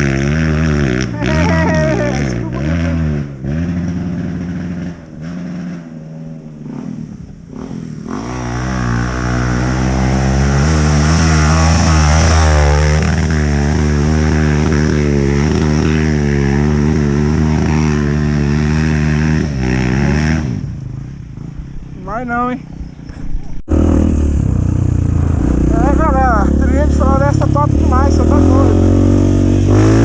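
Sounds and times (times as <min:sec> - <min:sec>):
dirt bike engine revving: 0:00.0 - 0:23.1, 0:23.7 - 0:30.0.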